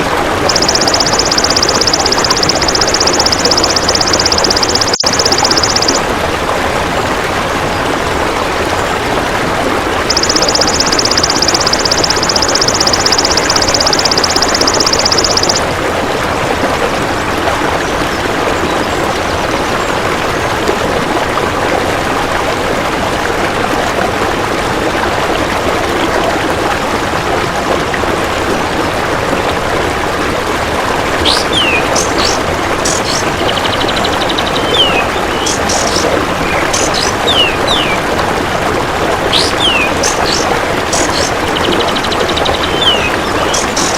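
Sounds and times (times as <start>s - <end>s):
rushing water-like noise: 0.0s - 43.9s
bird chirps: 0.5s - 6.0s, 10.1s - 15.6s, 31.2s - 38.0s, 39.3s - 43.9s.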